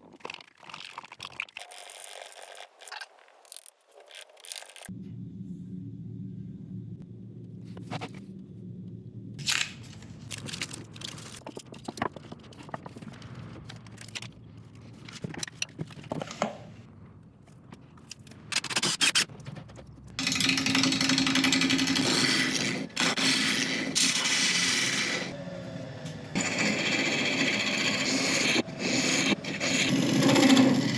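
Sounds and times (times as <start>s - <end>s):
low machine hum: 4.9s - 9.4s, 20.2s - 30.9s
power tool running: 20.2s - 30.9s.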